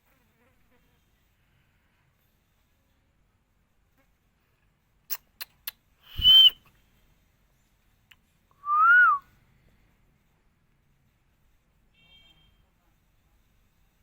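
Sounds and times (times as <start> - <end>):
parrot whistling: 6.1 - 6.6.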